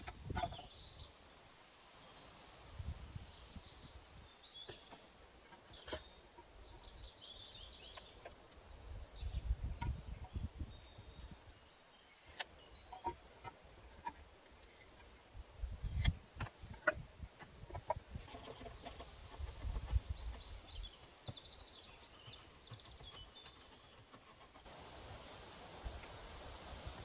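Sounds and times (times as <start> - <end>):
small birds chirping: 3.2 - 27.0
steady hiss: 24.7 - 27.0.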